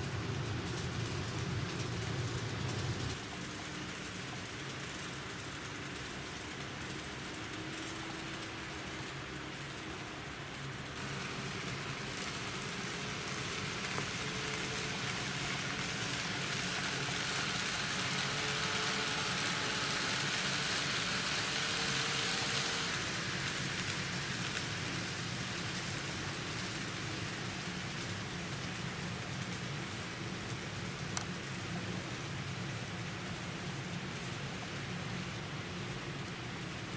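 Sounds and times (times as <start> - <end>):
model train rolling hiss: 0.0 - 3.2, 11.0 - 31.2.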